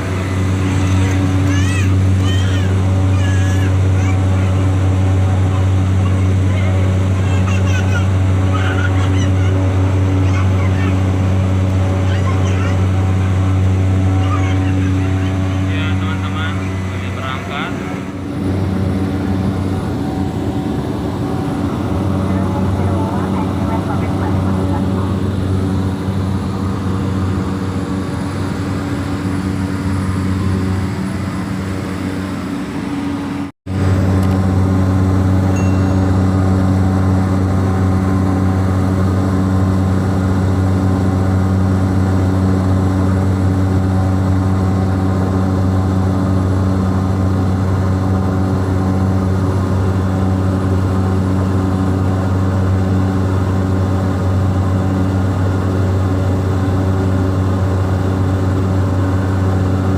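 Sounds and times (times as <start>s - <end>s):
propeller aircraft engine drone: 0.0s - 59.9s.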